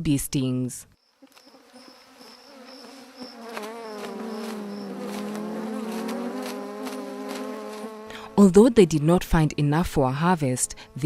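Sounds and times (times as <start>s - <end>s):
bee swarm buzzing: 1.1s - 8.7s.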